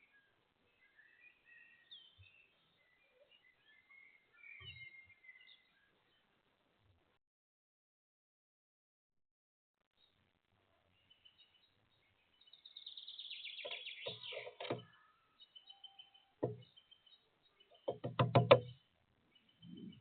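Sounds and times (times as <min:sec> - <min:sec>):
woodpecker knocking: 0:13.6 - 0:14.9, 0:16.4 - 0:16.8, 0:17.7 - 0:18.9.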